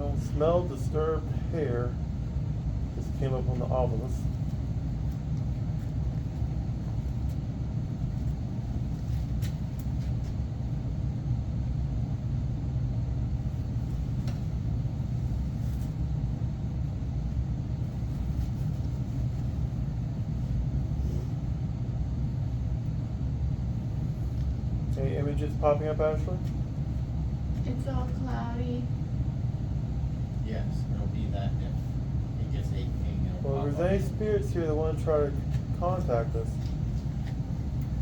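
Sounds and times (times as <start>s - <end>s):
low machinery rumble: 0.0s - 38.0s.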